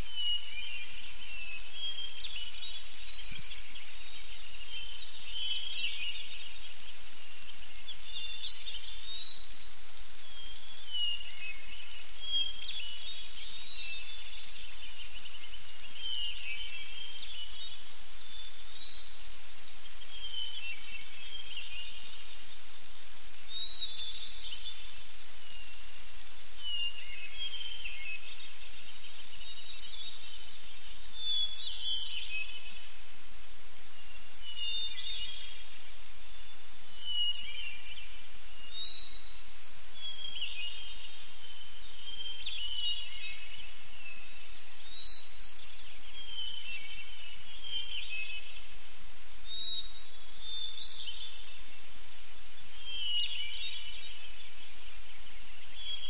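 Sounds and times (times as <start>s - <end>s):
small birds chirping: 0.0s - 56.0s
steady outdoor hiss: 0.0s - 56.0s
high whistled bird notes: 1.4s - 3.9s.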